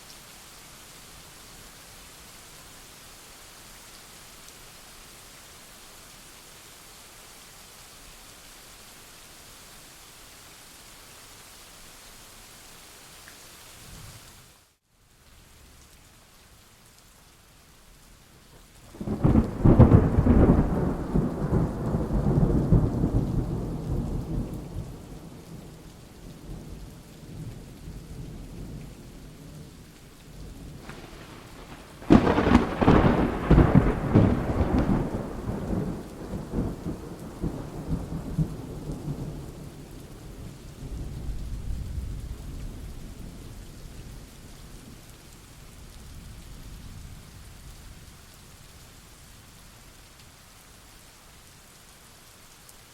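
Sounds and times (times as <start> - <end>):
steady rain: 0.0 - 52.9
thunder rumbling: 18.9 - 25.8, 30.6 - 40.4
sharp thunderclap: 30.8 - 39.2.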